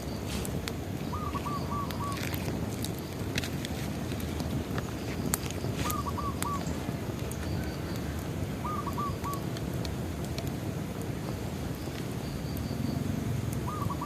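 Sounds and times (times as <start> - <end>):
bonfire rustle: 0.0 - 14.0
fire crackles and pops: 0.0 - 14.0
bird calling: 1.0 - 2.4, 5.2 - 6.8, 7.4 - 9.4, 13.6 - 14.0.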